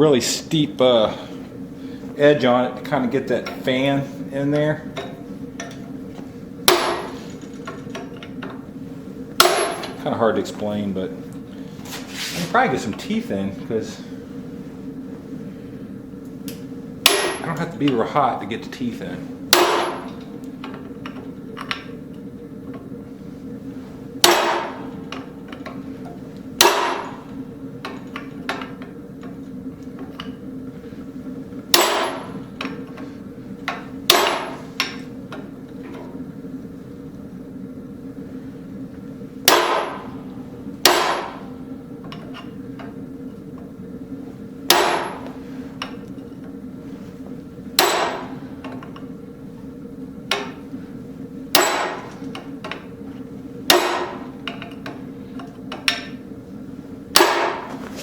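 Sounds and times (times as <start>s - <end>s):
steady hum: 0.0s - 58.0s
hammer striking chisel on steel: 6.7s - 7.2s, 17.0s - 17.6s, 19.5s - 20.2s, 24.2s - 24.9s, 26.6s - 27.3s, 31.8s - 32.4s, 34.1s - 35.0s, 39.5s - 40.1s, 40.8s - 41.4s, 44.7s - 45.3s, 47.8s - 48.4s, 51.6s - 52.2s, 53.7s - 54.6s, 57.2s - 58.0s.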